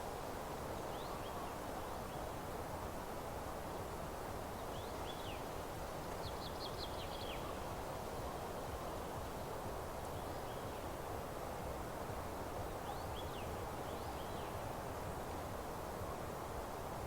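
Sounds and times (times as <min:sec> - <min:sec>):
faint birdsong chirps: 0:00.8 - 0:02.4, 0:04.5 - 0:07.7, 0:10.1 - 0:11.0, 0:12.6 - 0:14.7.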